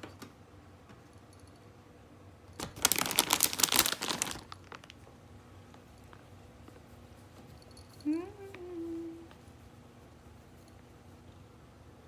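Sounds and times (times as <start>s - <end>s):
plastic packaging crinkling: 2.6s - 5.0s.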